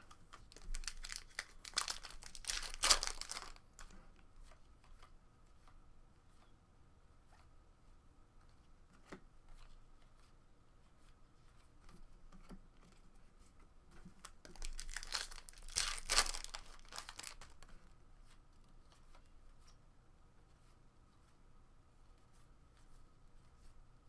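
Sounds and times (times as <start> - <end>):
wrapper ripping and crinkling: 0.3 - 3.9, 14.2 - 17.7.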